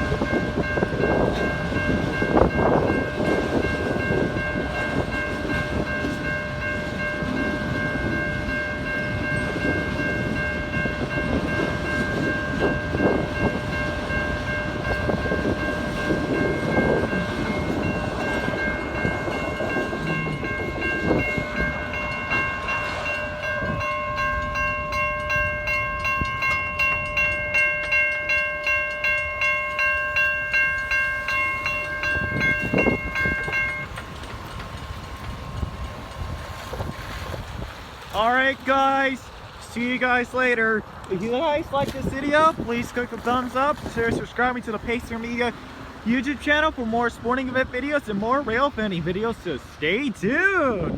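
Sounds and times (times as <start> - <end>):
crossing bell ringing: 0.0 - 37.2, 38.2 - 50.2
freight train rumbling: 0.0 - 50.9
wheel clacks over rail joints: 0.7 - 39.8.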